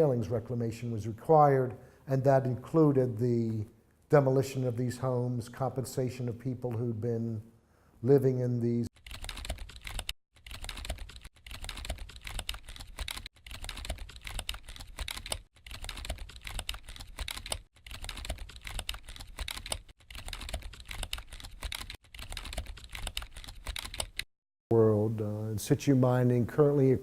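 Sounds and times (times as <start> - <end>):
rapid irregular clicking: 9.0 - 24.3.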